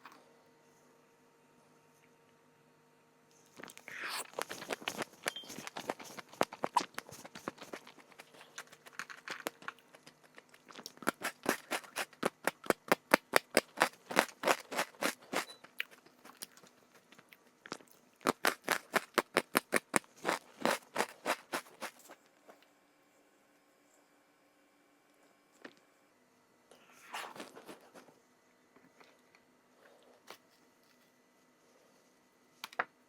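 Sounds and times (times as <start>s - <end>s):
crunchy snack being chewed: 3.5s - 22.2s, 27.0s - 28.0s.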